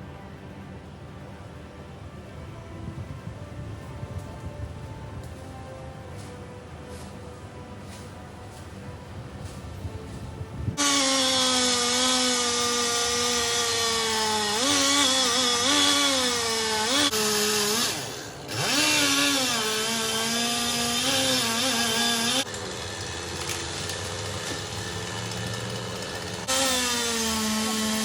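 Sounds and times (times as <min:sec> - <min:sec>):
chainsaw cutting at high revs: 0:10.8 - 0:28.0.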